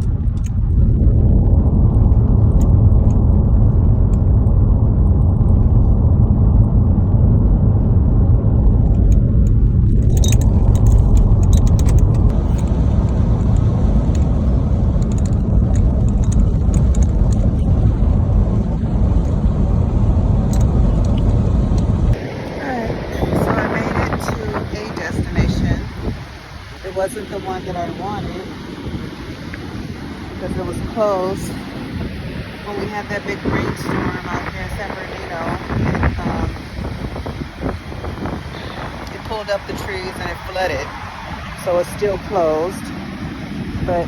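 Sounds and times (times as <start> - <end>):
road and engine rumble inside car: 0.0 - 28.4
light rattling clicks: 8.8 - 18.0, 20.4 - 22.2.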